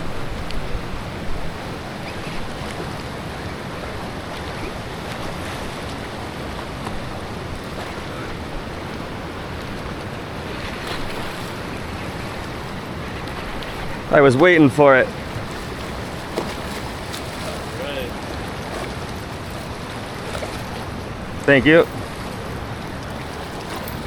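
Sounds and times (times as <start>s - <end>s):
wind on microphone: 0.0s - 14.2s
river water rushing: 0.0s - 24.0s.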